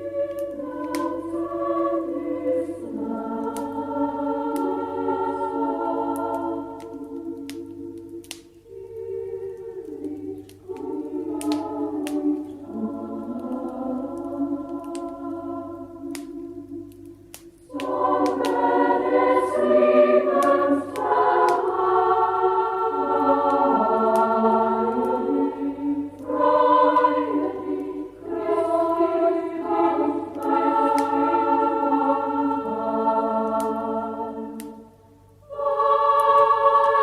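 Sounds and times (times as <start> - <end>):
choir singing: 0.0 - 37.0
faint sharp clicks: 3.4 - 3.8, 6.1 - 15.3, 16.1 - 18.7, 30.3 - 31.2, 34.6 - 34.8.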